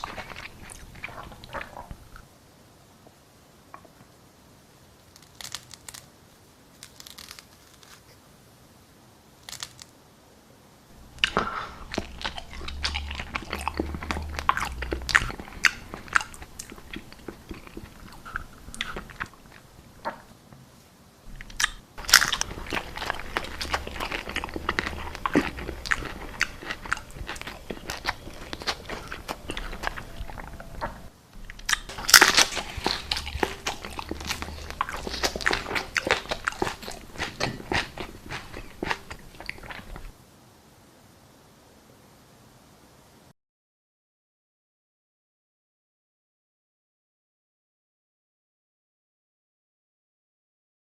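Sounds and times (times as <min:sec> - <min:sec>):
crunchy chewing of food: 0:00.0 - 0:02.3, 0:05.0 - 0:08.2, 0:09.4 - 0:09.9, 0:11.0 - 0:20.3, 0:21.3 - 0:40.2
mouth clicks: 0:11.0 - 0:20.3, 0:21.3 - 0:40.1.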